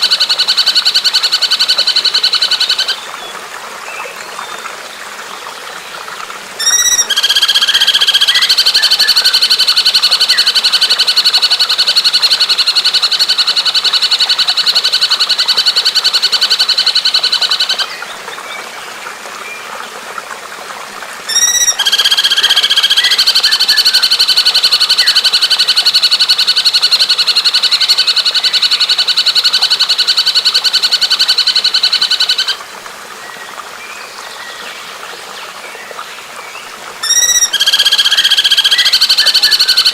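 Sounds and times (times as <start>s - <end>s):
trickling water: 0.0s - 39.9s
bird trilling: 6.6s - 13.8s, 21.3s - 32.6s, 37.0s - 39.9s.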